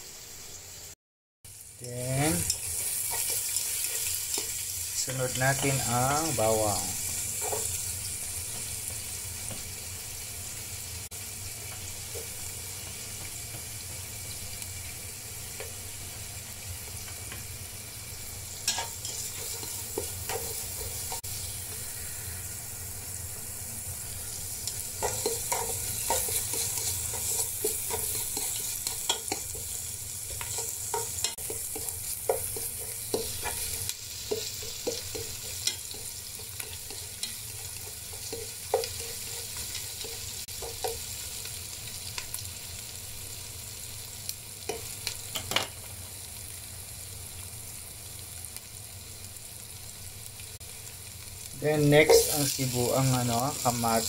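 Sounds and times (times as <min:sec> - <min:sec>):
onion sizzling in butter: 0:00.0 - 0:54.0
spatula scraping a pan: 0:02.5 - 0:04.6, 0:18.7 - 0:22.3, 0:24.7 - 0:40.8.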